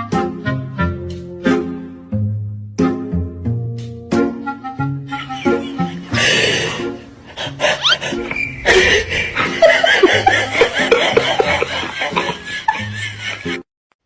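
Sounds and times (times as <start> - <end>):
background music: 0.0 - 13.6
laughter in bursts: 5.1 - 6.8, 7.6 - 13.6.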